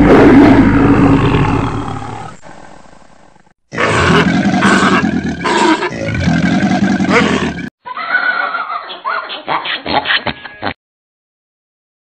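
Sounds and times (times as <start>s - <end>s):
animals roaring in a fight: 0.0s - 2.8s, 3.7s - 7.7s
hippos grunting: 3.7s - 7.7s.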